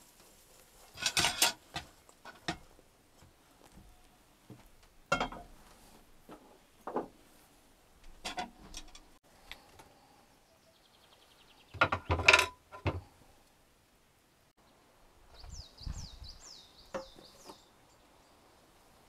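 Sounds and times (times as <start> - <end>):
cookware knocks and clinks: 5.1 - 5.5, 11.8 - 13.0.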